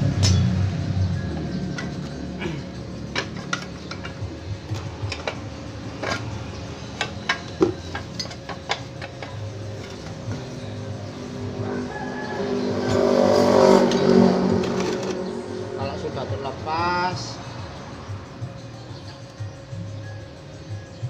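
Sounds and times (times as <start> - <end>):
metal tools clinking: 1.2 - 10.9.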